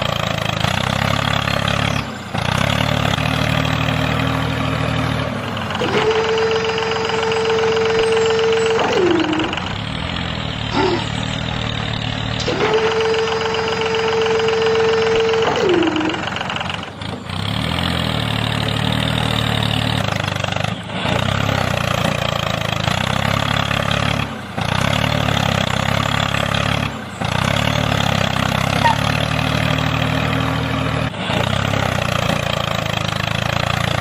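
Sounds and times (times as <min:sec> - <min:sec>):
tractor engine running: 0:00.0 - 0:34.0
whine sliding down in pitch: 0:07.3 - 0:09.7.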